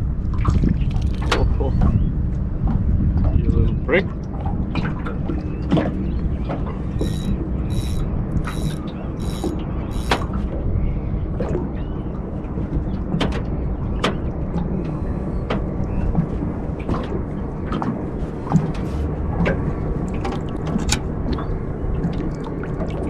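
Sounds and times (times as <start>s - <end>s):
water sloshing and dripping: 0.3s - 1.9s, 12.4s - 23.0s
sharp clicks and knocks: 7.0s - 10.3s.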